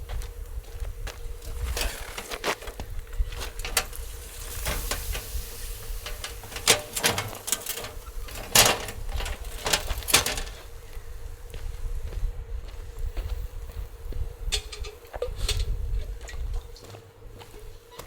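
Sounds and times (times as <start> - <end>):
firewood crackling and popping: 0.0 - 10.8
low rumble of wind: 0.0 - 18.0.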